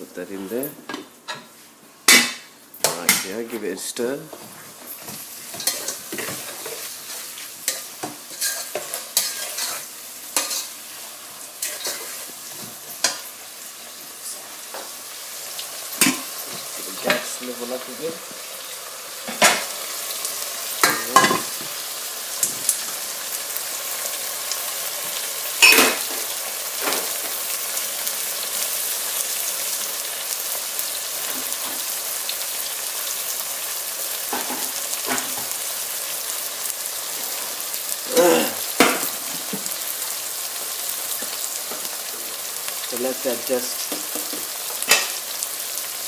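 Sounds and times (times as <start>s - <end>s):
curry sizzling in a pan: 0.3s - 46.0s
spoon scraping a pan: 5.0s - 10.8s, 11.6s - 12.3s, 43.8s - 45.2s.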